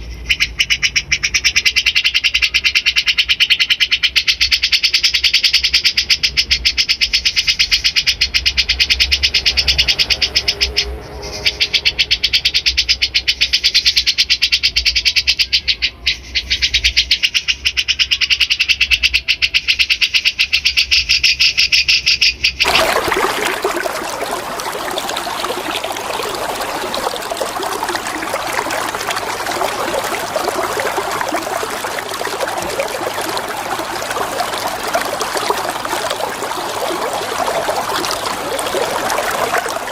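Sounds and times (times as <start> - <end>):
flowing water: 22.6 - 39.9.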